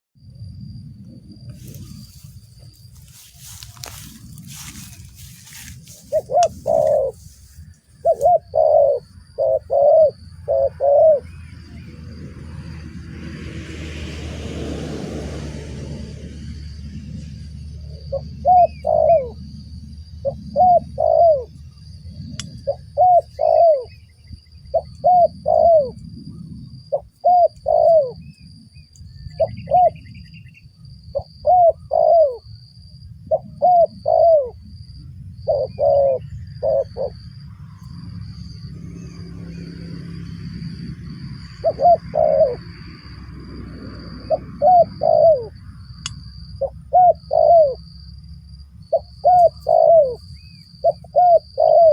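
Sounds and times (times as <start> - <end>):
low rumble: 0.2 - 7.8
dove cooing: 3.1 - 12.8, 18.0 - 19.5, 20.2 - 21.6, 22.2 - 24.1, 24.7 - 26.0, 26.9 - 28.4, 29.4 - 30.2, 31.2 - 32.5, 33.3 - 34.6, 35.4 - 37.2, 41.4 - 42.8, 44.0 - 45.6, 46.6 - 47.8, 48.9 - 51.9.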